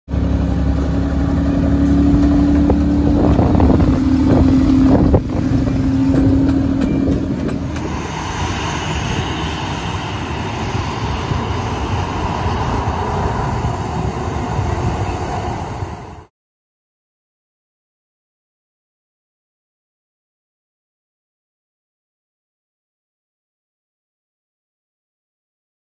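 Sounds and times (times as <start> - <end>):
miniature locomotive rumbling: 0.1 - 16.1
jet engines roaring: 0.3 - 16.3.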